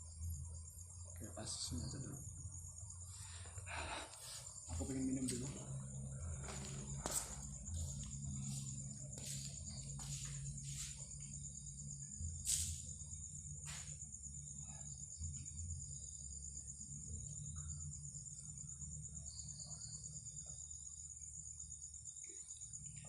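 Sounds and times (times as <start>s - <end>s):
crickets trilling: 0.0s - 23.0s
low steady rumble: 4.5s - 14.6s.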